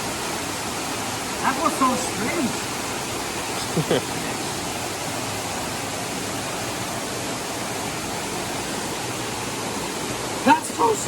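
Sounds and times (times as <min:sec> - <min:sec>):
creek water rushing over rocks: 0:00.0 - 0:11.0.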